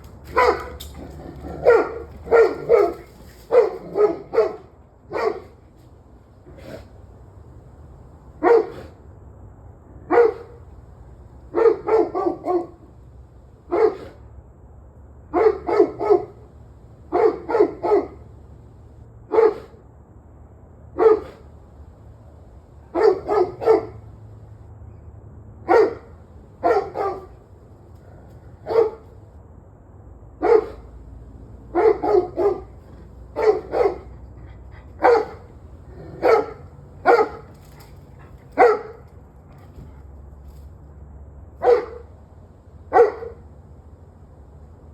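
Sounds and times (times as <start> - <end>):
dog barking: 0.2 - 5.6, 8.4 - 9.0, 10.1 - 10.7, 11.5 - 12.9, 13.6 - 14.3, 15.3 - 16.5, 17.1 - 18.3, 19.3 - 19.8, 21.0 - 21.5, 22.9 - 24.1, 25.6 - 27.4, 28.5 - 29.2, 30.4 - 31.0, 31.7 - 39.1, 41.6 - 42.1, 42.9 - 43.4.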